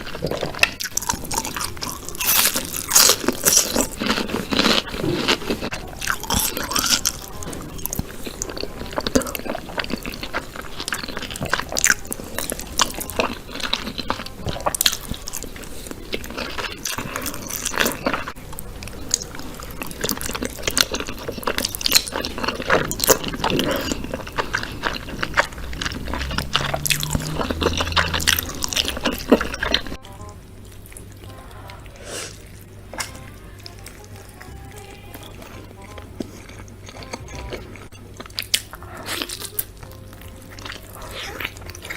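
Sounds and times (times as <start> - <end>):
wet squishing: 0.0 - 30.0
person biting and chewing: 0.0 - 31.1, 35.1 - 41.9.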